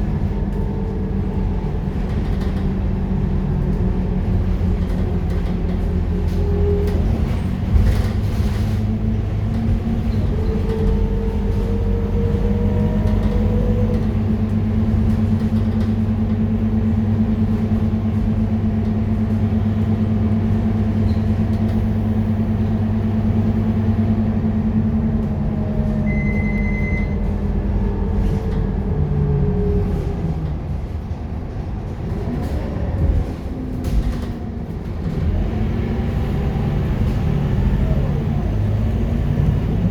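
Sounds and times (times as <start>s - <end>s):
bus diesel engine running: 0.0s - 39.9s
short high beep: 26.0s - 27.2s.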